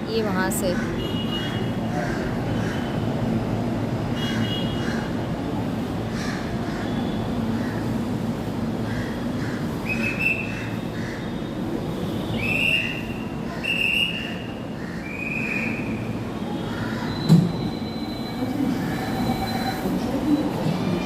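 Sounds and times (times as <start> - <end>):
train rumbling: 16.0 - 21.0
train wheels squealing: 16.7 - 21.0.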